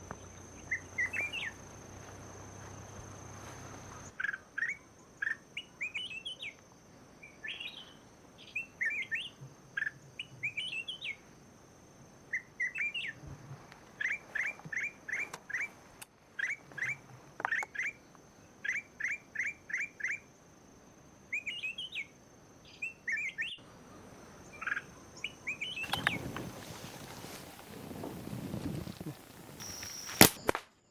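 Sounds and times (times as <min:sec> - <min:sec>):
small birds chirping: 0:00.0 - 0:01.7, 0:07.2 - 0:11.2, 0:21.3 - 0:30.5
burst of noise: 0:25.8 - 0:30.6
thin high tone: 0:25.8 - 0:30.6.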